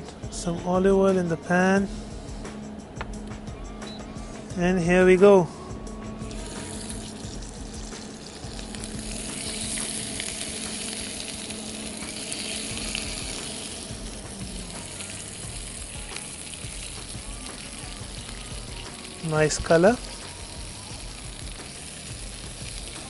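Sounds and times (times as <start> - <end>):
prawns sizzling in a frying pan: 6.2 - 23.0.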